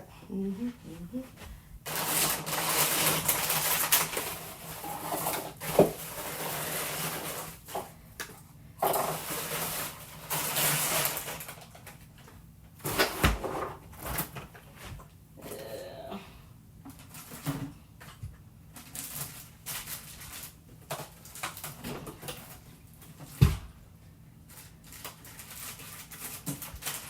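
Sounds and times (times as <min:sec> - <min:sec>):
plastic packaging rustling: 0:01.8 - 0:08.0, 0:08.8 - 0:12.2, 0:18.7 - 0:23.3, 0:24.4 - 0:27.0.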